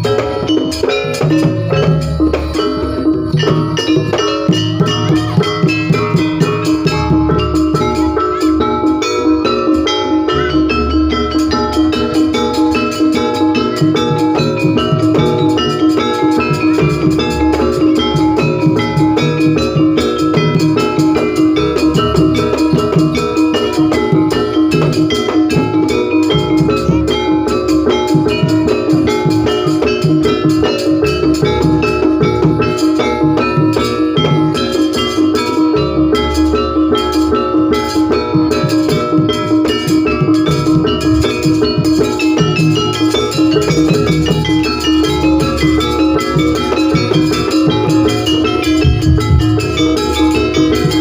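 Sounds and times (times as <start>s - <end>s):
fast drum beat: 0.0s - 51.0s
gamelan percussion ringing: 0.0s - 51.0s
heavy bass: 48.4s - 51.0s.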